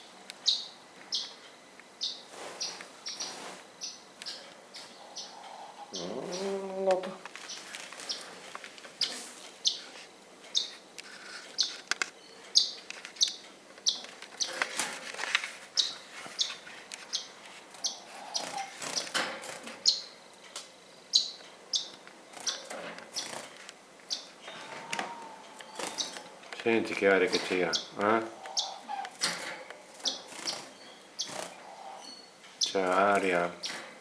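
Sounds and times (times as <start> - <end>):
bird chirping: 0.0 - 8.4, 9.0 - 10.8, 11.5 - 14.6, 15.8 - 19.2, 19.8 - 20.3, 20.9 - 23.4, 24.1 - 29.3, 30.0 - 32.9
rustling: 2.3 - 3.7, 6.8 - 12.2, 14.0 - 19.8.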